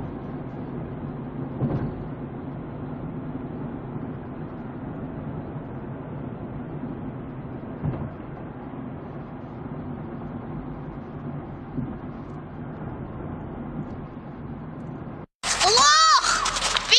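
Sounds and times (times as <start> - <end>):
car road and engine noise: 0.0 - 15.3.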